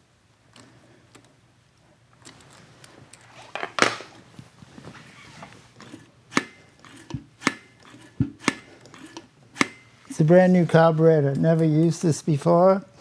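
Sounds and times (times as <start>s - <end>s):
metal parts knocking: 5.8s - 10.3s.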